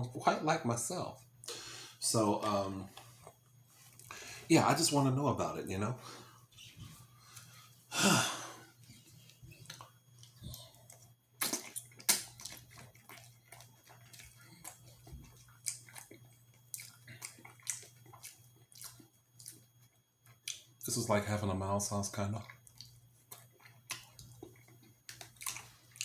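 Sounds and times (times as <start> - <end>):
low electrical hum: 0.0 - 26.0
wet chewing and mouth clicks: 8.8 - 20.9, 22.3 - 26.0.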